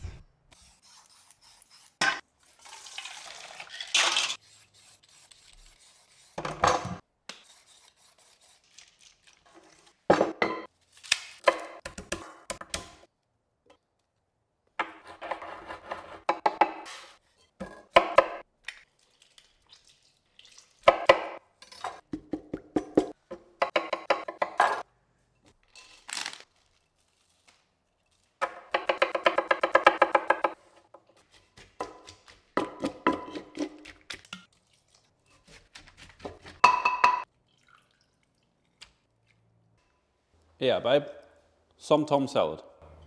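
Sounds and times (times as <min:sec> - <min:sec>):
kitchen handling sounds: 0:02.0 - 0:04.4, 0:06.4 - 0:07.0, 0:21.2 - 0:26.4
pestle pounding in a mortar: 0:31.6 - 0:33.9.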